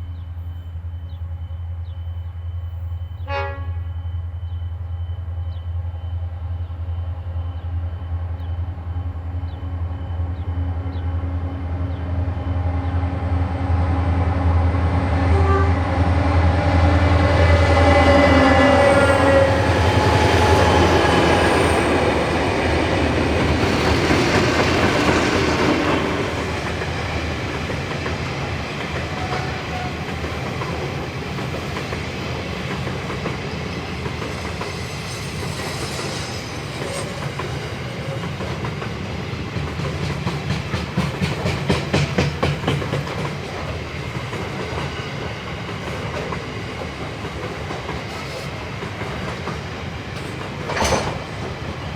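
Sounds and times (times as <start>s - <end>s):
rumble of passing train: 0.0s - 51.9s
locomotive horn: 3.2s - 4.0s, 15.2s - 21.9s
wheels clicking over rail joints: 45.6s - 51.8s.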